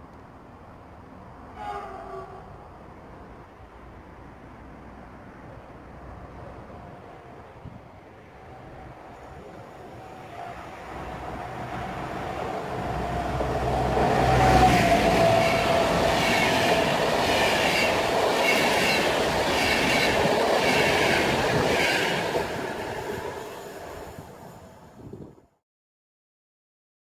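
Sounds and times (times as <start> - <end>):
locomotive hum and whine: 1.1 - 25.3
wheels clacking over rail joints: 10.9 - 24.0.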